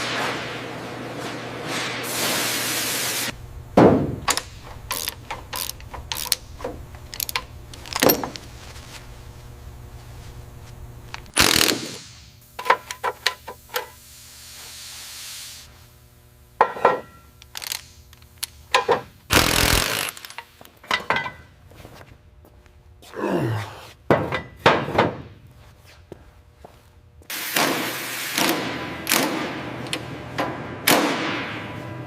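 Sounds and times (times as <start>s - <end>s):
tools knocking and clicking: 4.2s - 8.4s, 12.6s - 13.9s, 18.4s - 19.1s, 20.2s - 21.4s.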